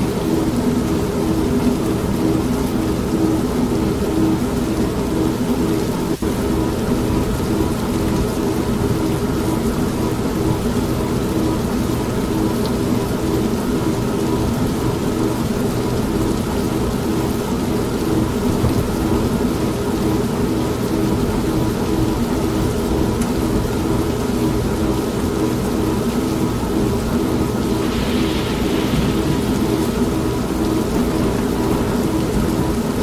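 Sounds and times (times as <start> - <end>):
steady rain: 0.0 - 33.0
washing machine humming: 0.0 - 33.0
thunder rumbling: 27.6 - 33.0.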